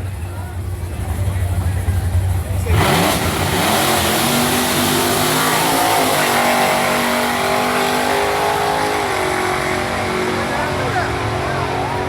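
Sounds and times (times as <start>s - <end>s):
car engine revving: 1.1s - 12.0s.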